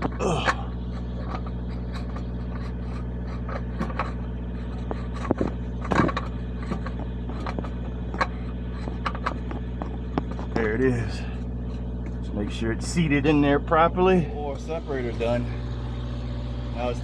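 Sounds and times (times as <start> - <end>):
engine idling drone: 0.0 - 17.0
plastic clicks and scrapes: 0.8 - 10.6.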